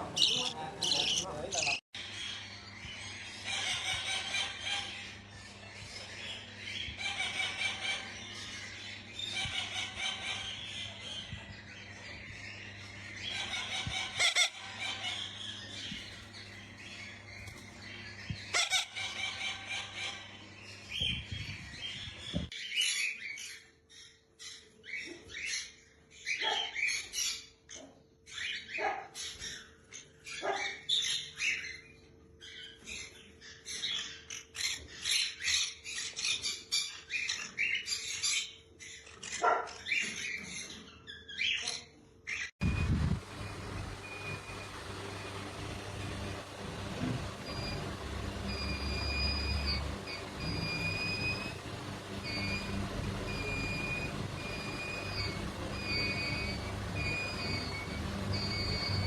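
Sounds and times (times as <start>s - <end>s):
parrots calling: 0.0s - 21.2s, 43.2s - 59.0s
steady low hum: 42.6s - 59.0s.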